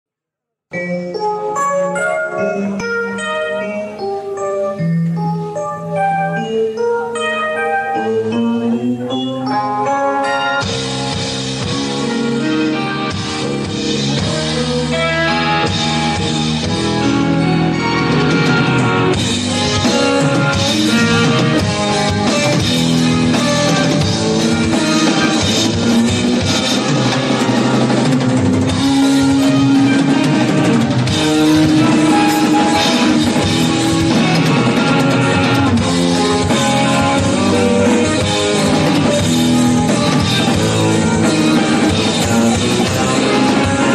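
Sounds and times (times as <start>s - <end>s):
bass guitar: 0.7s - 43.9s
electric guitar: 0.7s - 43.9s
keyboards: 0.7s - 43.9s
drums and cymbals: 10.4s - 43.9s.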